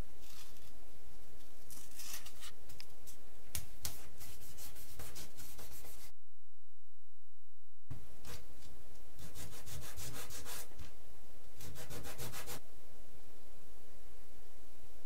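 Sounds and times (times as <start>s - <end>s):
hand sanding wood: 3.9s - 6.1s, 9.2s - 10.7s, 11.6s - 12.6s.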